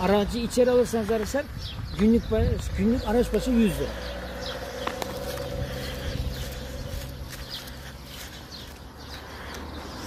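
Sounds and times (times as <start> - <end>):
birds chirping: 0.0 - 10.0
steady low hum: 3.9 - 8.1.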